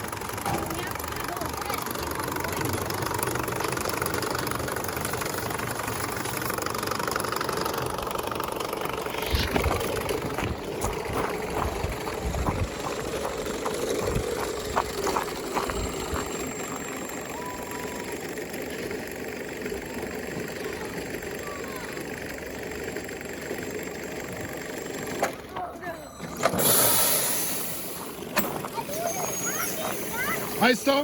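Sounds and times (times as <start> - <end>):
machine hum: 0.0 - 28.4.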